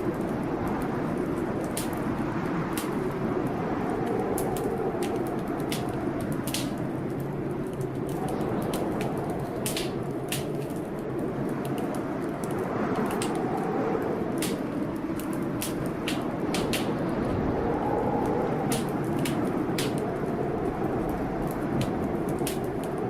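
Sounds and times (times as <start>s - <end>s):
rainstorm: 0.0s - 23.0s
wood fire crackling and popping: 0.0s - 23.0s.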